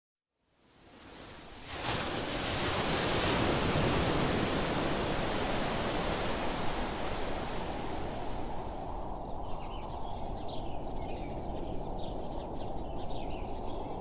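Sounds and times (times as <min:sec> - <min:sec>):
ocean surf rushing: 0:00.8 - 0:09.1.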